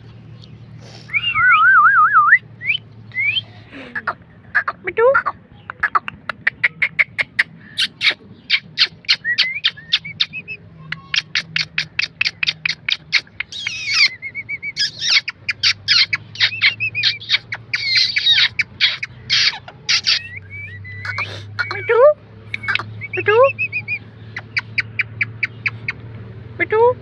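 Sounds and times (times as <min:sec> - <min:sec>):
parrot chirping: 0:04.6 - 0:26.0
parrot screeching: 0:11.1 - 0:20.4.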